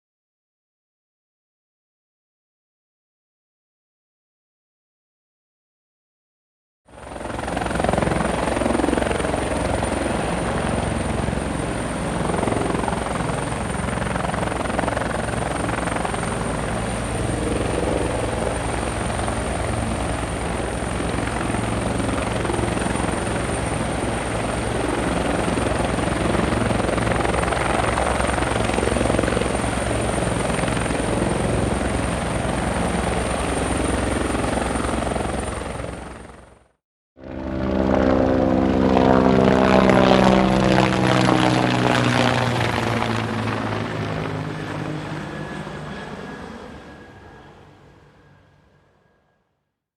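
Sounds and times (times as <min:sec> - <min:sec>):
thin high whine: 0:15.7 - 0:21.5.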